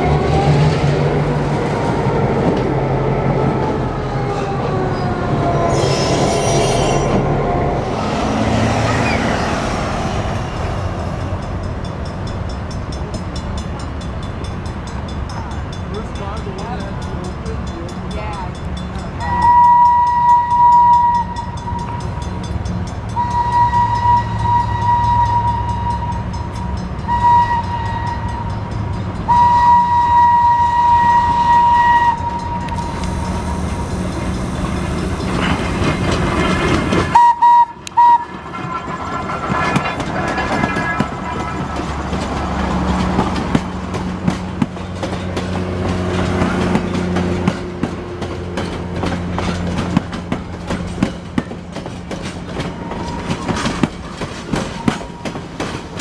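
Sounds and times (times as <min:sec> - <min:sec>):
low rumble of train: 0:00.0 - 0:56.0
locomotive horn: 0:19.2 - 0:22.3, 0:23.1 - 0:33.7, 0:37.1 - 0:43.0.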